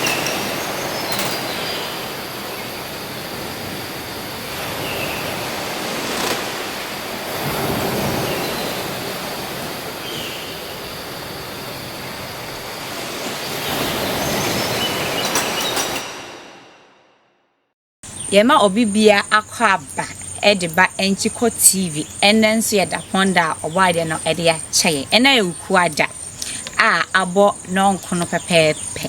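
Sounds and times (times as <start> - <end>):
sharp clicks: 26.3 - 26.8.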